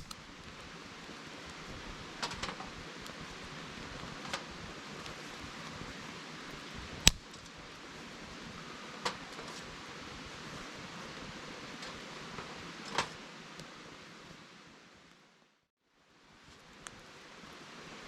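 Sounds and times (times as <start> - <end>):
sharp fire pops: 0.0 - 0.2, 7.0 - 7.3
wood fire hissing: 0.0 - 15.2.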